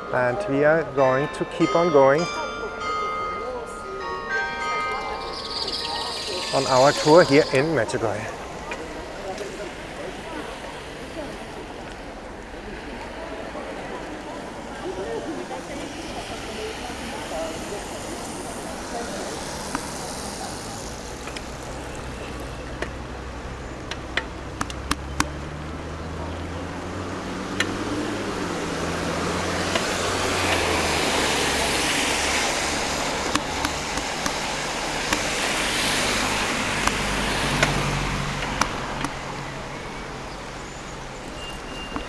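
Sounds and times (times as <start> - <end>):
cars passing on wet road: 0.0 - 42.0
sharp ticks and clicks: 4.8 - 8.8, 23.8 - 25.4, 29.6 - 39.3.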